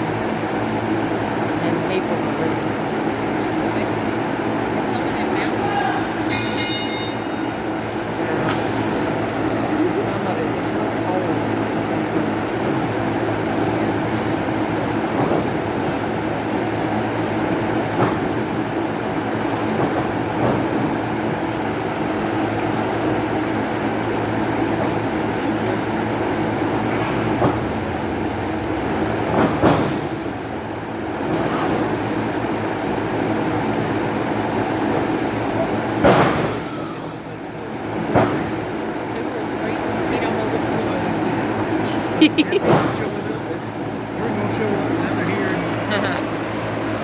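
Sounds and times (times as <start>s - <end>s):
crowd hubbub: 0.0s - 47.0s
thuds from wrestling ring: 36.0s - 36.8s.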